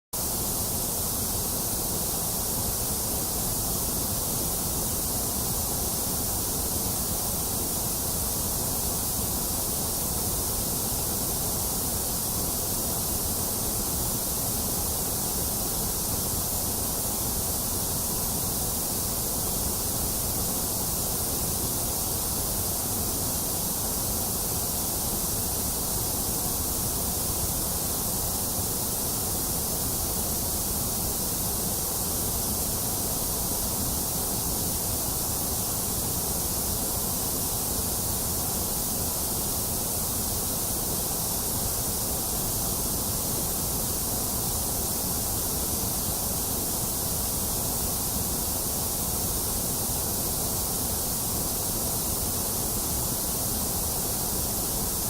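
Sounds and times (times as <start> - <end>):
white noise hiss: 0.1 - 55.0.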